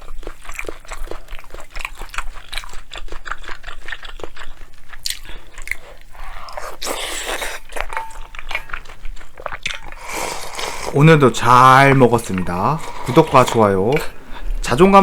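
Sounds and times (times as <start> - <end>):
chewing and mouth smacking: 0.0 - 11.1.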